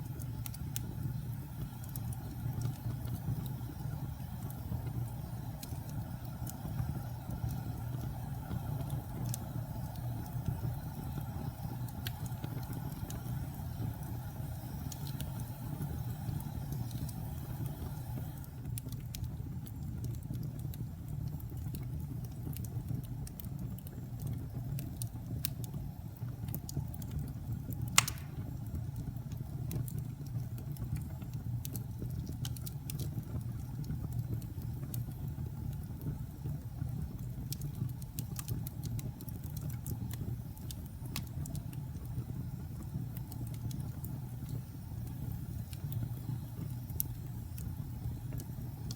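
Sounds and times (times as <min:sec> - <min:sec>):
fire crackling: 0:00.0 - 0:48.9
fire rumbling: 0:00.0 - 0:48.9
fire pop: 0:27.8 - 0:28.9.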